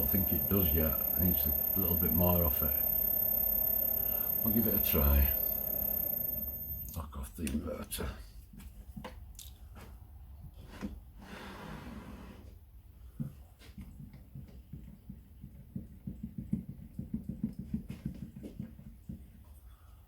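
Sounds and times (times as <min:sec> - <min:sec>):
fast irregular ticking: 0:00.0 - 0:06.9
steady low hum: 0:00.0 - 0:07.0.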